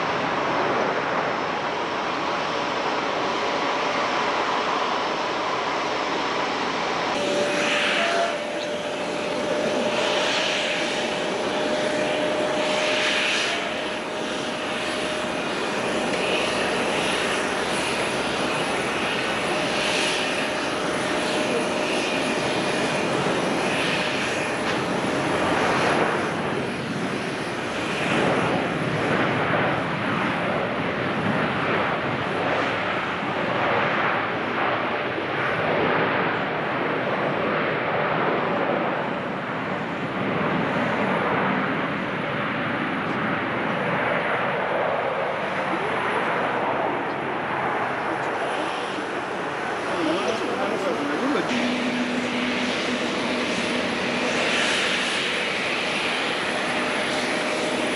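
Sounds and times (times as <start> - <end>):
steady whine: 0.0 - 29.5, 43.0 - 57.9
jet engines in reverse thrust: 0.0 - 57.9.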